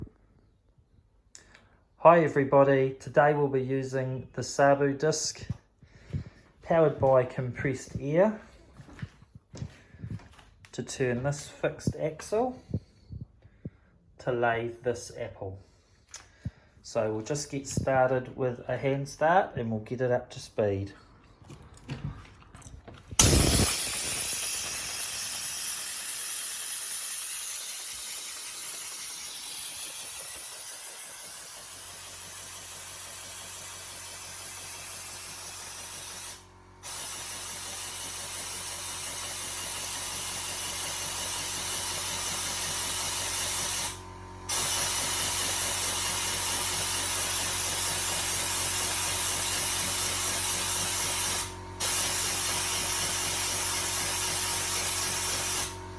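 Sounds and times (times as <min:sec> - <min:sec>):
compressed air hissing: 0:23.2 - 0:39.9, 0:43.2 - 0:47.3.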